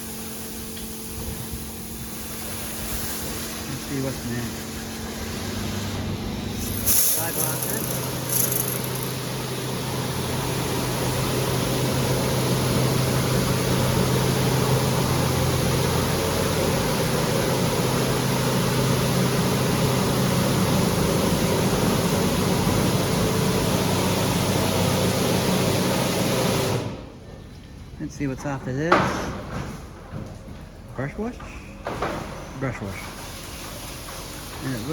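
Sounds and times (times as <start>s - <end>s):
high-pressure water jets hissing: 0.0s - 11.1s
low machine hum: 0.0s - 25.6s.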